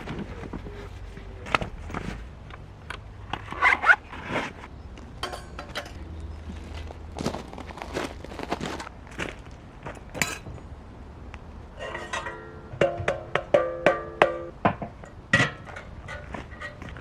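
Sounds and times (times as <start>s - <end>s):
cookware knocking and clinking: 5.2s - 6.0s, 10.2s - 10.6s, 11.8s - 15.8s.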